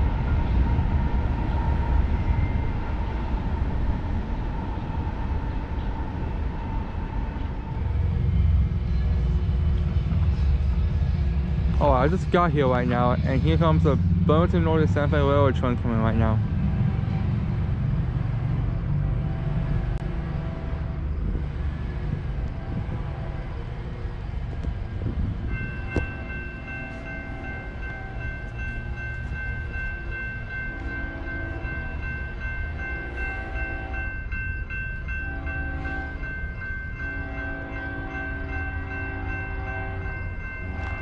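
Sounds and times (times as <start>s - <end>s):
train rumble: 0.0s - 41.0s
train horn blasts: 18.9s - 21.3s, 22.3s - 23.6s, 25.6s - 28.7s, 30.6s - 32.0s, 32.8s - 34.2s, 35.2s - 36.4s, 37.1s - 41.0s.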